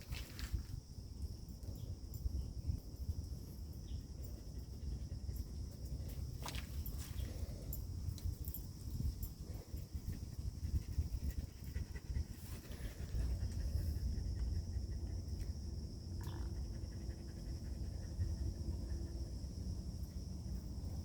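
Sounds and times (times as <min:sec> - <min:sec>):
wind buffeting microphone: 0:00.0 - 0:16.0
dog panting: 0:09.5 - 0:15.4.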